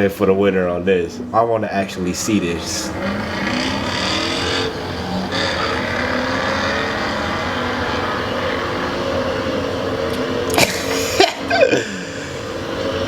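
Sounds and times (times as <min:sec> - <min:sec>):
car engines revving hard: 0:01.0 - 0:13.0.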